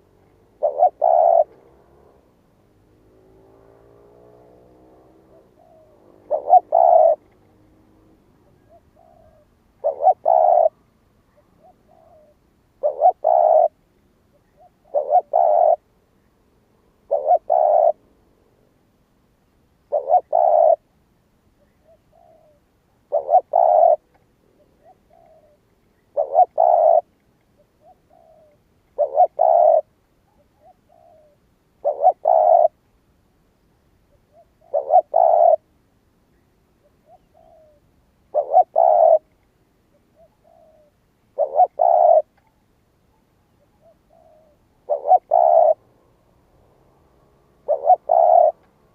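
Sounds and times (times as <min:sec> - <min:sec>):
dove cooing: 0:00.0 - 0:16.1, 0:16.8 - 0:18.7, 0:19.7 - 0:21.0, 0:21.6 - 0:32.9, 0:34.1 - 0:35.7, 0:36.8 - 0:48.9.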